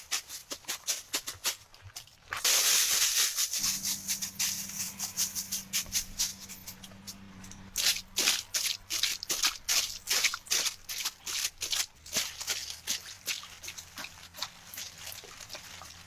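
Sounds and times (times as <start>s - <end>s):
dry leaves and twigs rustling: 0.0s - 16.0s
low hum: 3.6s - 11.0s.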